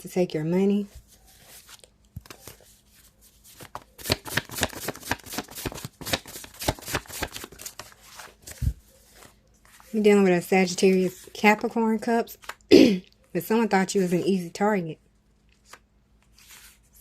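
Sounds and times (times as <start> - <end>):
cards being shuffled: 1.0 - 10.0.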